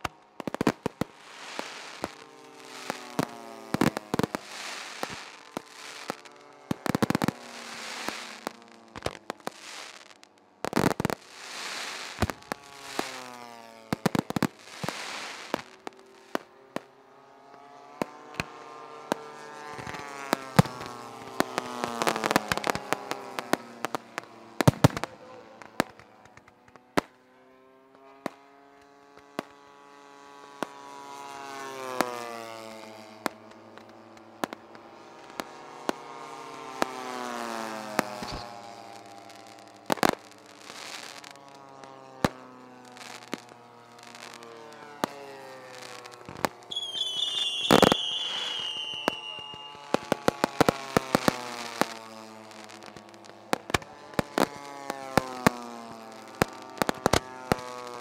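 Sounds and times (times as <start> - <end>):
fireworks banging and crackling: 0.0 - 58.0
high falling whistle: 46.7 - 50.3.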